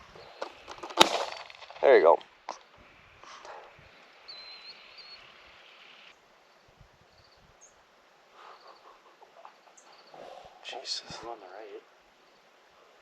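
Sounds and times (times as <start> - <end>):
faint high chirps: 2.6 - 7.8
insect trilling: 2.8 - 6.1.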